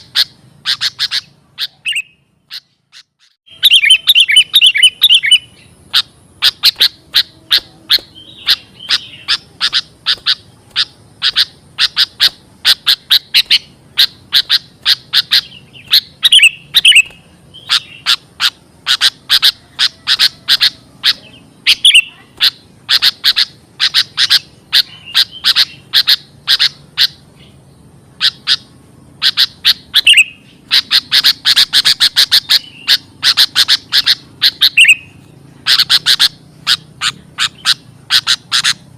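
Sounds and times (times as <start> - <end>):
bird chirping rapidly: 0.0 - 38.9
bird slurred warble: 2.9 - 27.2.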